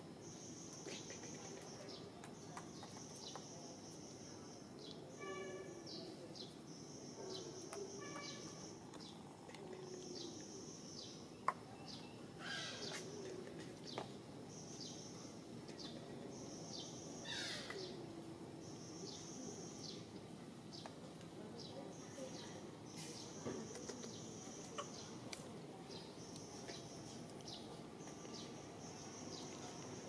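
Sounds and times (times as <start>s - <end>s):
birds chirping: 0.2s - 30.0s
falling bird calls: 4.8s - 18.1s.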